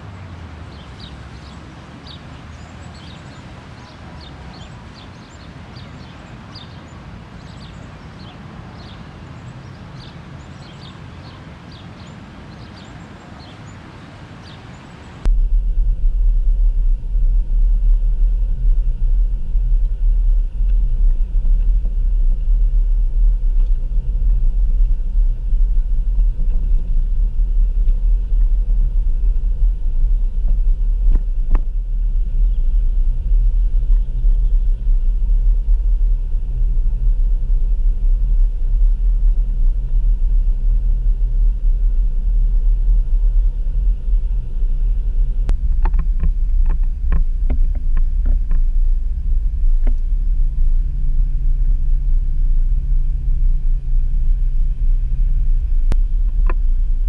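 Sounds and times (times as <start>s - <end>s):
small birds chirping: 0.0s - 15.3s, 18.4s - 48.7s
soft outdoor background: 0.0s - 57.0s
loud low rumble: 15.2s - 57.0s.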